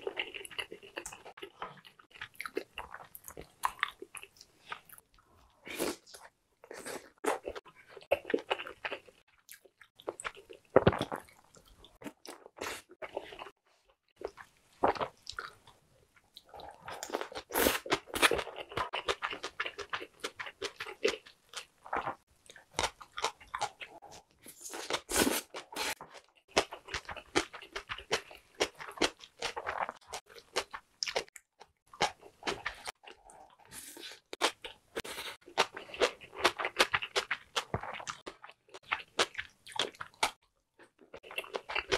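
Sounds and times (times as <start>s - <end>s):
crunchy chewing: 16.4s - 41.9s.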